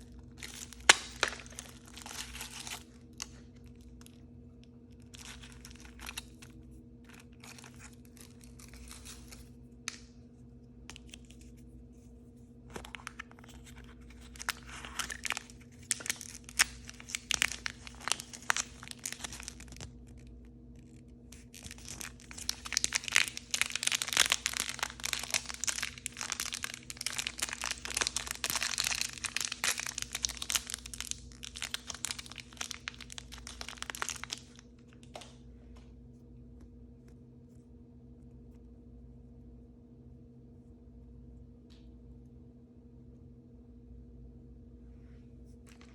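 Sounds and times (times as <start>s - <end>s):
plastic packaging crinkling and tearing: 0.0s - 10.1s, 12.7s - 35.4s, 45.6s - 45.9s.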